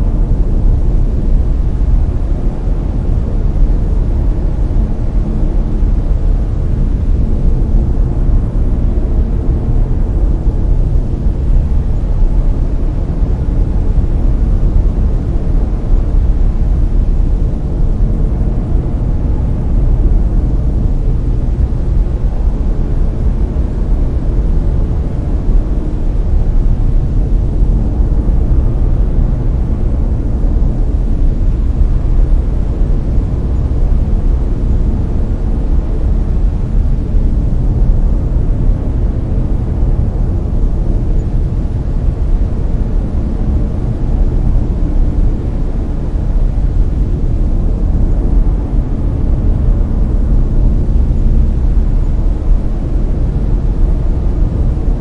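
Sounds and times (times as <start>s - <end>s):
brown noise: 0.0s - 55.0s.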